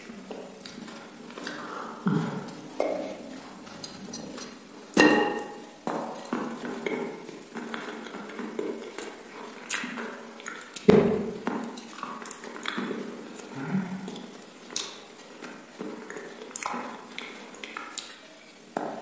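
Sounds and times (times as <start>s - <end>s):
loud eating bursts: 0.0s - 5.0s, 7.3s - 18.8s
wet chewing and mouth smacks: 0.3s - 4.6s, 7.6s - 18.3s.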